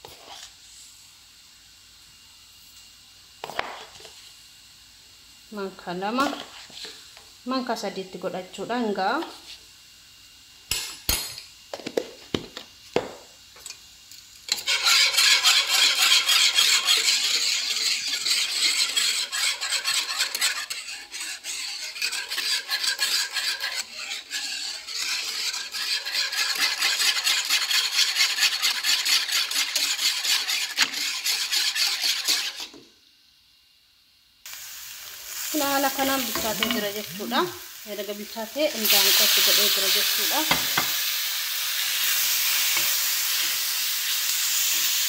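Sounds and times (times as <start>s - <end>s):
utensil stirring and scraping pan: 0.0s - 0.7s, 5.9s - 7.2s, 14.5s - 32.8s, 35.3s - 45.0s.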